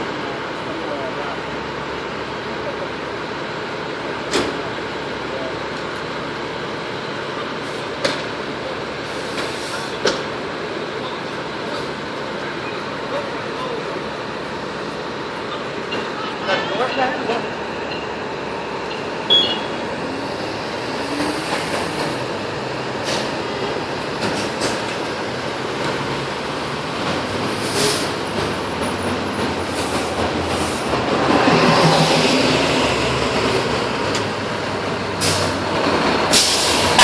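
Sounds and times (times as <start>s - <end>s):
fire engines rumbling: 0.0s - 37.0s
short hisses of air: 27.5s - 28.1s.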